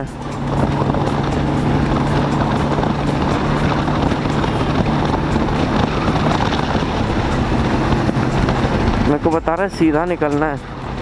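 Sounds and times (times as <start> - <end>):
motorcycle engine running: 0.0 - 11.0
road noise: 0.0 - 11.0
wind noise: 0.0 - 11.0.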